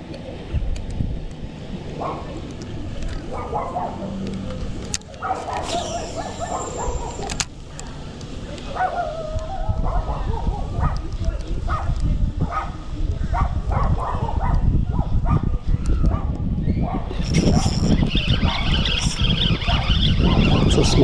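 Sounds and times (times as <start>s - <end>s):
dogs barking and yelping: 3.3s - 4.2s, 5.1s - 7.5s, 8.7s - 11.0s, 13.4s - 21.0s.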